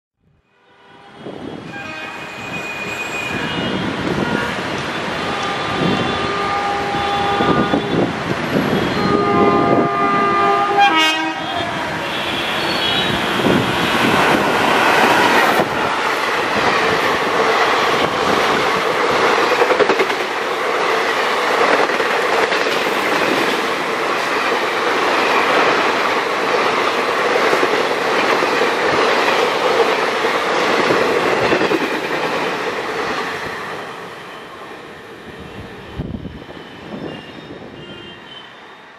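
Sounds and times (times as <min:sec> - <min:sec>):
train horn blasts: 0:00.4 - 0:08.1, 0:08.7 - 0:14.2, 0:37.0 - 0:38.5
train wheels clickety-clack: 0:13.6 - 0:33.8.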